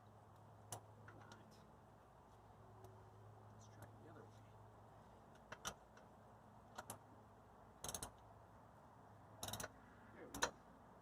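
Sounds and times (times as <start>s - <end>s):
ratchet wrench clicking: 7.8s - 8.2s, 9.4s - 9.8s.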